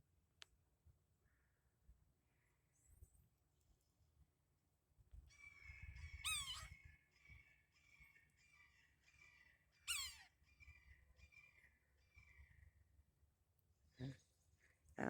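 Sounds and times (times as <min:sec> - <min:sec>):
woodpecker harsh calls: 0:05.6 - 0:06.8, 0:08.5 - 0:12.4.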